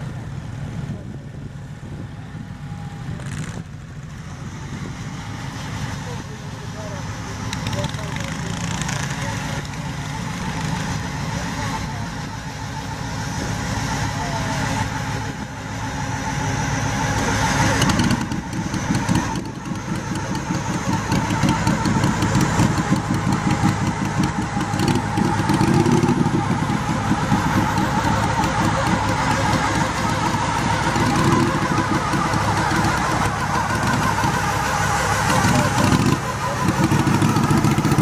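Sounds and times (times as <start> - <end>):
garden tractor engine running: 0.0 - 38.0.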